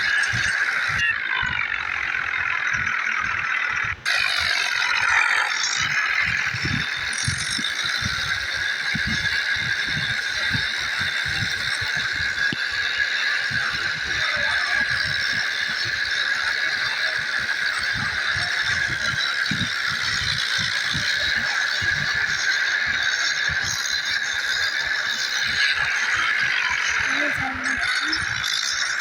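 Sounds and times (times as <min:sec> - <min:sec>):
tractor engine rattling: 0:00.0 - 0:29.0.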